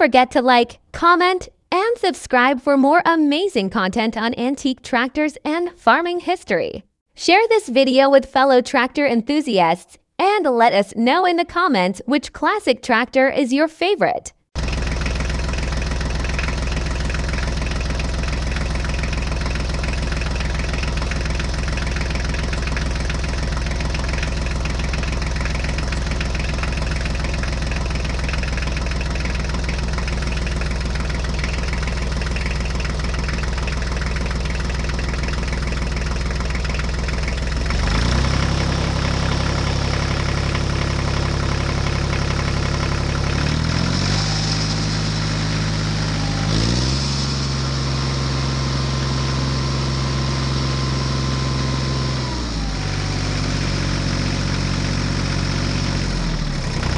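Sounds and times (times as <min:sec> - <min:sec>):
tractor engine idling: 0:14.6 - 0:56.9.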